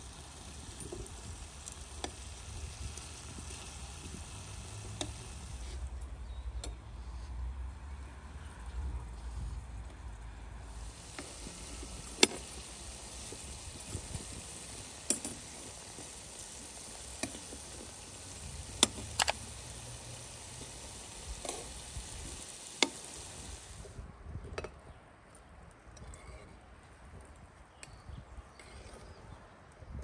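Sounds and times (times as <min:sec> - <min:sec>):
food sizzling in a pan: 0:00.0 - 0:05.8, 0:10.7 - 0:24.0.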